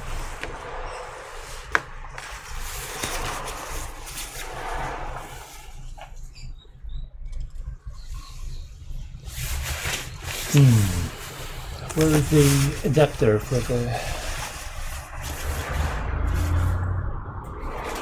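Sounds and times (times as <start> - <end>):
rustling of small items: 0.1 - 6.0, 9.3 - 16.9.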